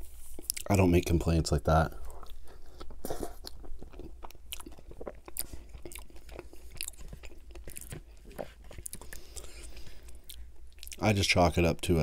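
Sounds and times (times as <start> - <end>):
wet chewing with mouth smacks: 2.1 - 11.0.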